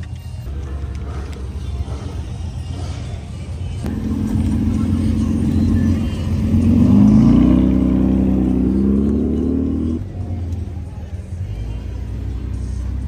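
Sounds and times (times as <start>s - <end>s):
car engine revving: 0.5s - 13.0s.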